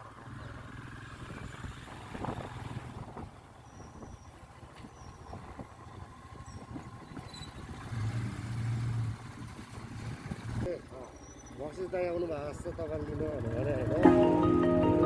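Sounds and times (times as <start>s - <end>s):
motorcycle engine drone: 12.2s - 15.0s.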